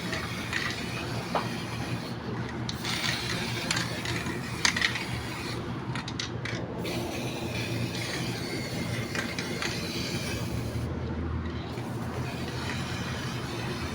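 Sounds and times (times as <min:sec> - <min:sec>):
steady mechanical hum: 0:00.0 - 0:13.9.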